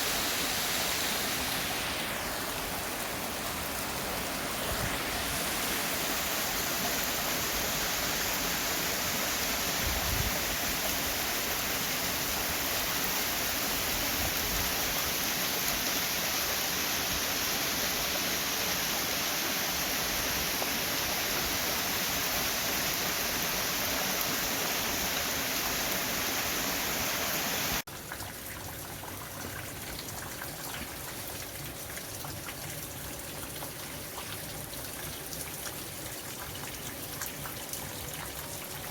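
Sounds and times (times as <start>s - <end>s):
stream water rushing: 0.0s - 27.8s.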